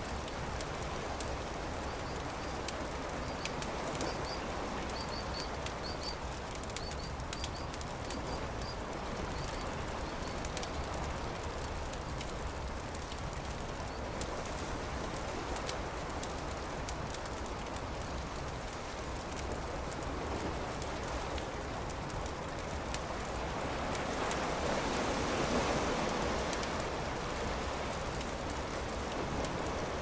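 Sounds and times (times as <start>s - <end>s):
campfire crackling: 0.0s - 30.0s.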